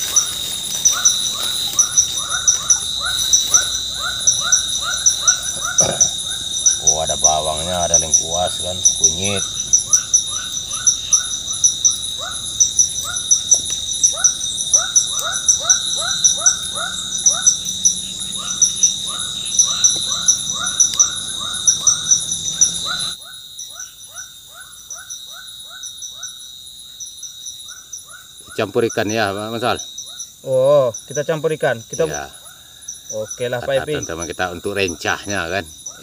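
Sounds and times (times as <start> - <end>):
insects trilling: 0.0 - 36.0.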